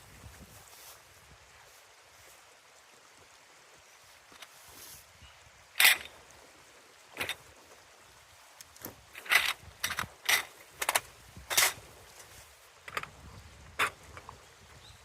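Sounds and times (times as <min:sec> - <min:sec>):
river rushing: 0:00.0 - 0:15.0
scraping and rustling: 0:08.8 - 0:13.2.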